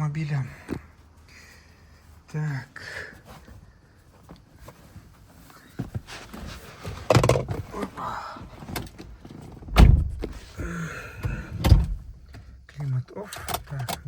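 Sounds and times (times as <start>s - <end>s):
car interior clunks and knocks: 4.2s - 12.6s
car door shutting: 8.7s - 12.2s.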